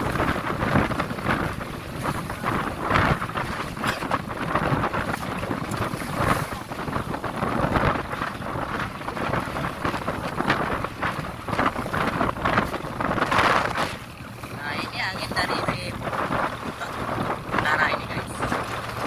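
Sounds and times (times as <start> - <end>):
water and waves rushing: 0.0 - 19.0
wind buffeting microphone: 0.0 - 19.0.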